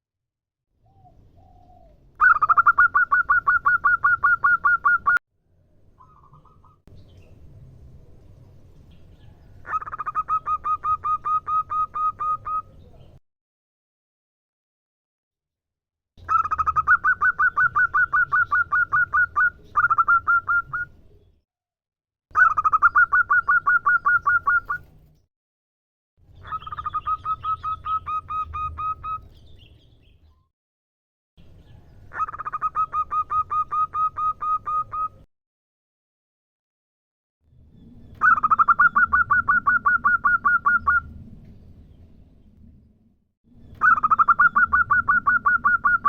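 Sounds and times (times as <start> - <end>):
dove calling in staccato notes: 43.8 - 46.0.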